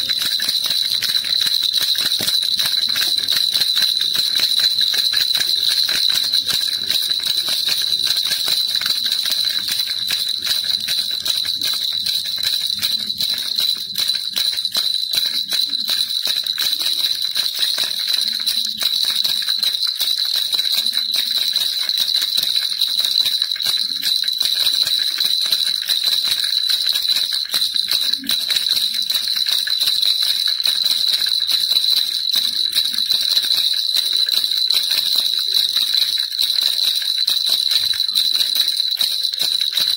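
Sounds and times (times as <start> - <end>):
baby rattle shaken: 0.0 - 39.9.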